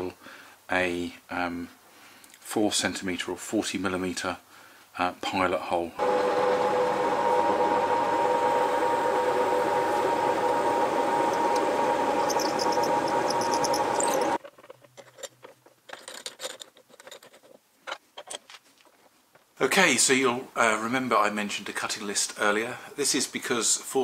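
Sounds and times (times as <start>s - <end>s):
drill press boring wood: 6.0s - 14.4s
high ticks: 10.4s - 14.4s.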